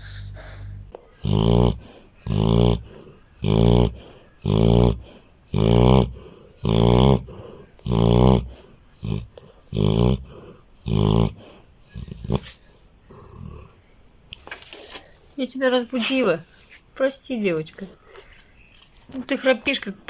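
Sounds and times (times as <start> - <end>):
dog snoring loudly: 0.0 - 13.8.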